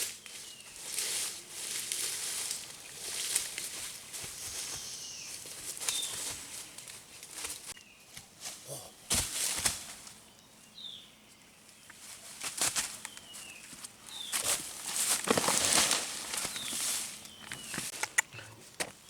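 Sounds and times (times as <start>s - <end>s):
rustling in dry vegetation: 0.0s - 19.0s
bird chirping: 4.4s - 6.4s, 13.0s - 14.6s, 16.3s - 18.6s.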